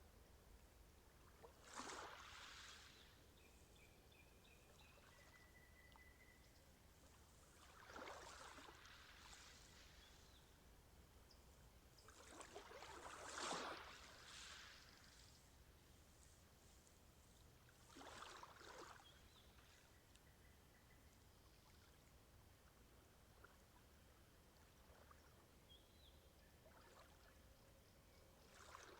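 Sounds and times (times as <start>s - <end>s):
water swishing: 7.5s - 10.1s, 12.1s - 15.3s, 17.7s - 19.1s.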